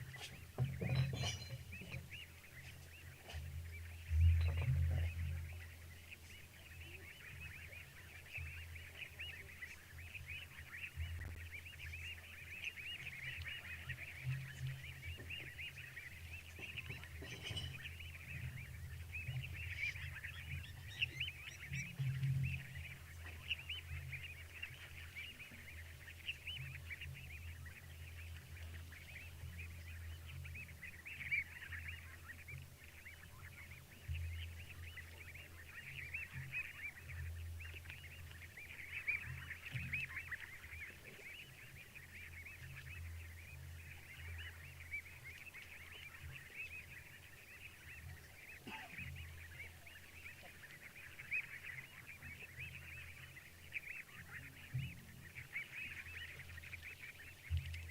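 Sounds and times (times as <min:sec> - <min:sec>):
frogs calling: 0:48.6 - 0:49.0.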